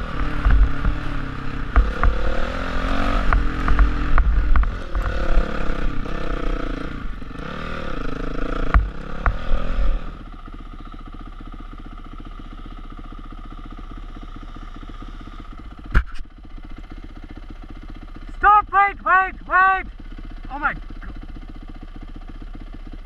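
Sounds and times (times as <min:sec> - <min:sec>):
engine knocks: 0:00.0 - 0:06.2, 0:08.4 - 0:09.5
dirt bike engine idling: 0:00.0 - 0:23.0
dirt bike engine revving: 0:00.0 - 0:23.0.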